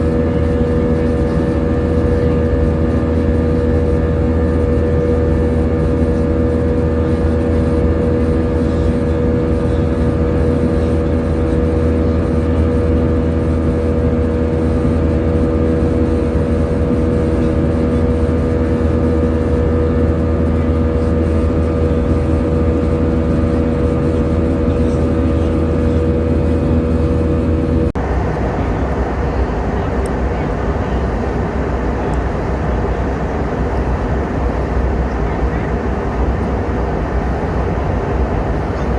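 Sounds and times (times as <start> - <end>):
airliner cabin rumble: 0.0 - 38.9
multi-tone hum: 0.0 - 38.9.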